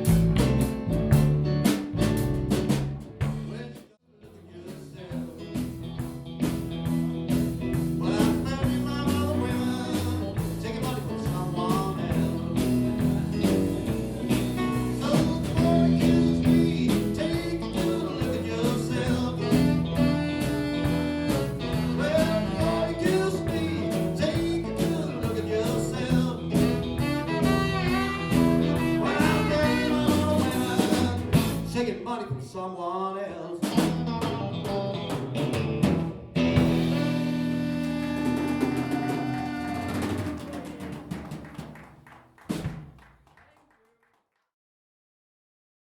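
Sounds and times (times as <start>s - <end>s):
electric guitar: 0.0s - 3.6s, 5.0s - 31.8s, 33.6s - 40.9s
live blues rock band: 0.0s - 3.7s, 4.6s - 31.9s, 33.6s - 41.7s
person singing: 8.0s - 34.6s, 36.6s - 40.9s.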